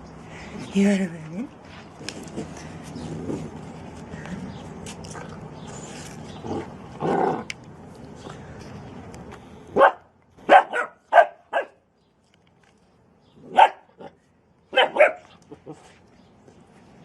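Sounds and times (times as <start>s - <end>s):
dog barking: 9.8s - 11.8s, 13.5s - 13.9s, 14.7s - 15.3s.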